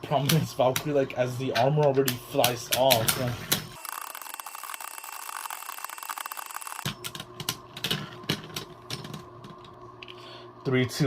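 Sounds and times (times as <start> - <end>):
spinning tops rattling: 3.8 - 6.9.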